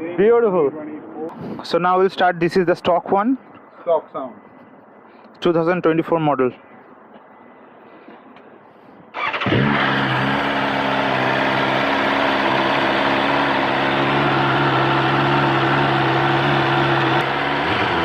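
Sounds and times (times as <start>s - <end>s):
motorcycle engine starting and idling: 9.1s - 18.0s.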